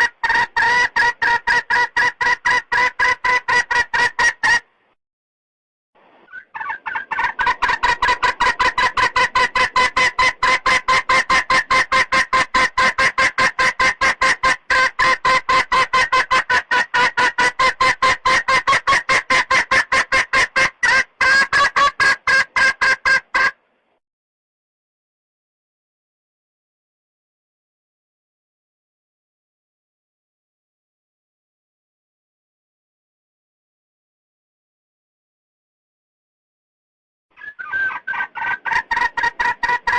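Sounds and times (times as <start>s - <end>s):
hen clucking: 0.0s - 4.7s, 6.2s - 23.6s, 37.4s - 39.9s.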